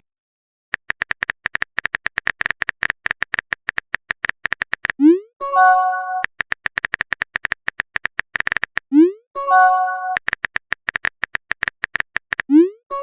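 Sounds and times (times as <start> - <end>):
phone keyboard tapping clicks: 0.7 - 5.0, 6.2 - 8.9, 10.1 - 12.5
multi-tone notification chime: 9.4 - 10.2.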